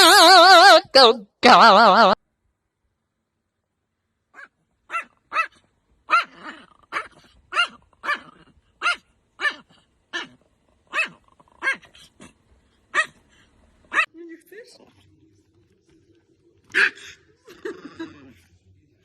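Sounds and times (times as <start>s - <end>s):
small dog barking: 4.3s - 14.1s, 16.7s - 17.2s.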